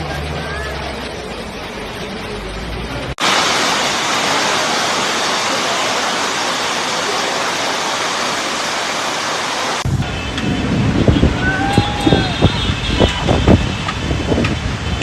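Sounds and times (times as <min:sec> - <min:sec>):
loud rushing noise: 0:03.1 - 0:15.0.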